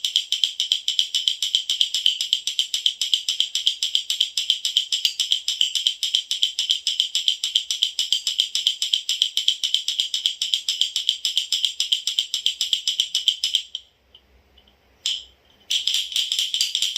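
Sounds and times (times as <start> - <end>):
baby's toy rattle shaken: 15.1 - 16.9.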